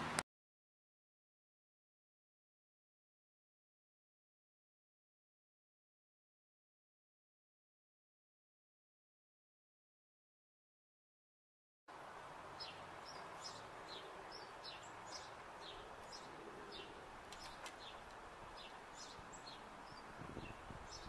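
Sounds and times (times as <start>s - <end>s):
steady outdoor hiss: 0.0s - 0.2s, 11.9s - 21.0s
small birds chirping: 12.4s - 21.0s.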